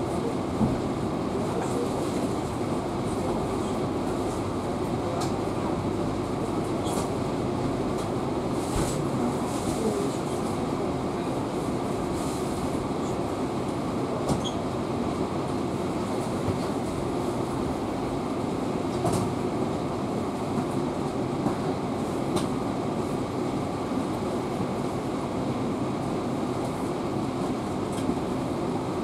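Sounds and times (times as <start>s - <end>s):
train wheels rumbling on rail: 6.5s - 25.2s.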